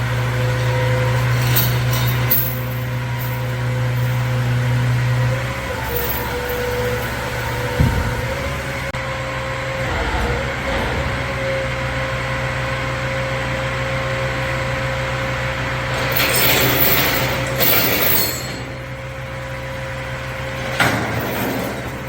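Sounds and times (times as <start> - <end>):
hydraulic whine: 0.0 - 22.0
truck engine hum: 0.0 - 22.0
clunk: 0.6 - 9.0, 15.9 - 19.1, 20.5 - 22.0.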